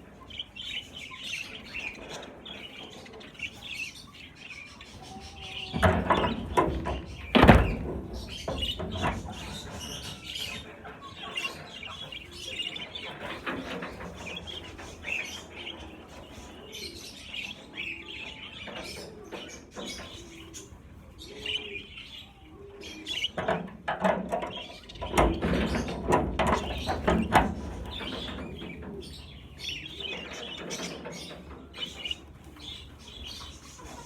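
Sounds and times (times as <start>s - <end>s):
budgerigars chattering and chirping: 0.0s - 34.0s
loud thump: 6.9s - 8.8s.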